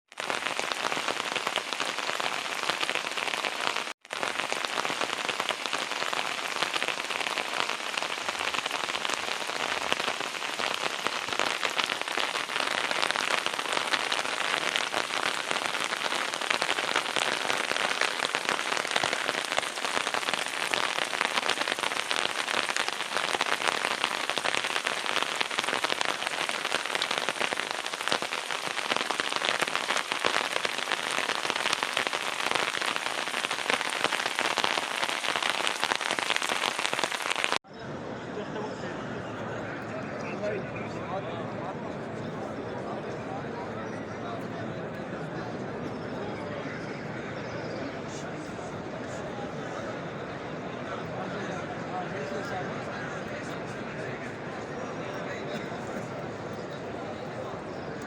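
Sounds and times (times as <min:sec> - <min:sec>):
rain pattering on hard surfaces: 0:00.2 - 0:37.6.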